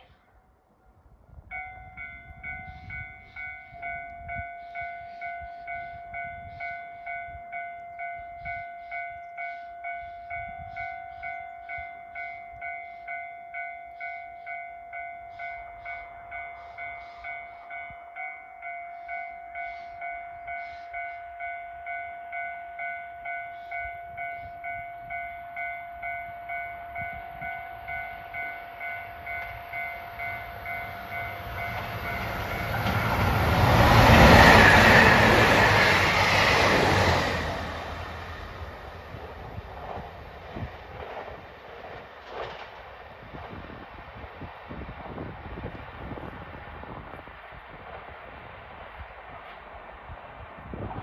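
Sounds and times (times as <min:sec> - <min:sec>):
express train passing at speed: 0:00.0 - 0:51.0
level crossing warning bell: 0:01.5 - 0:39.0.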